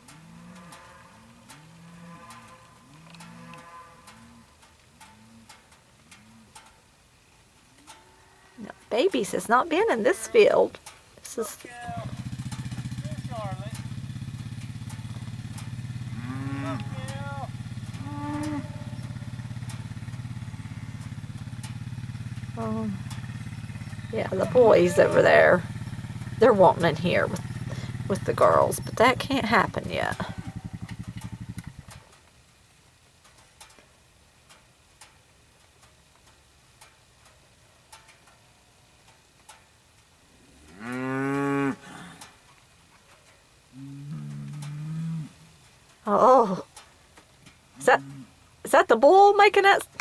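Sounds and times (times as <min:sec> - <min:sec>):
faint ticks: 0:00.0 - 0:09.0, 0:09.6 - 0:26.4, 0:27.3 - 0:48.9
cattle mooing: 0:00.1 - 0:04.5, 0:16.0 - 0:21.3, 0:22.5 - 0:30.9, 0:40.6 - 0:42.4, 0:43.8 - 0:45.4, 0:47.8 - 0:48.4
four-wheeler engine idling: 0:08.6 - 0:33.4.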